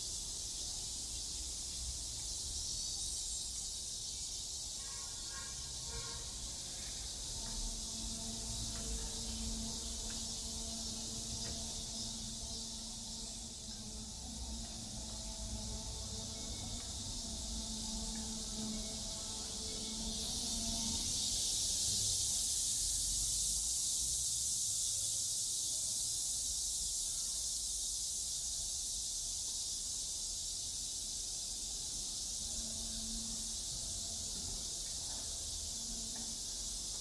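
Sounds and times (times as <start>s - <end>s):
cicada chorus: 0.0s - 37.0s.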